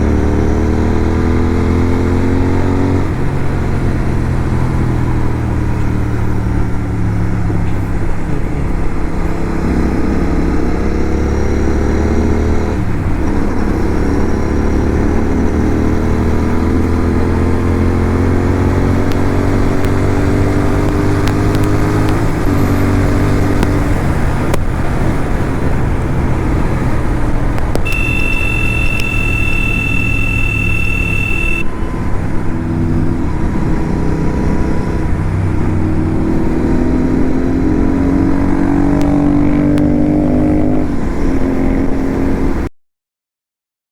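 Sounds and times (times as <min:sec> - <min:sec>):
motorcycle engine accelerating: 0:00.0 - 0:42.7
steady high tone: 0:27.8 - 0:31.8.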